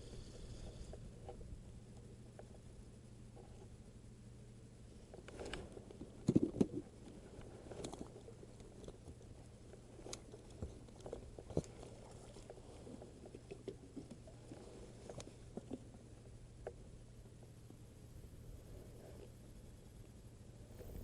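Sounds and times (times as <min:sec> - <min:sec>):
low hum: 0:14.2 - 0:21.0.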